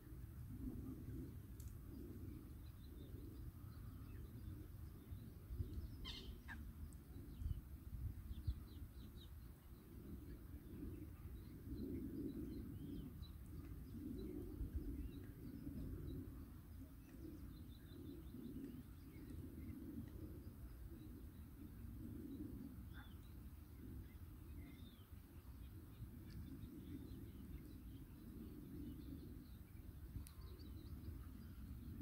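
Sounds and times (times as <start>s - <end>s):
faint bird chirps: 2.6s - 7.6s.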